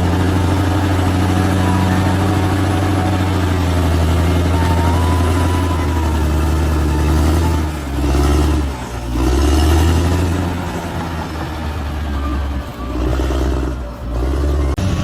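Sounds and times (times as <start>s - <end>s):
bulldozer diesel engine: 0.0s - 15.0s.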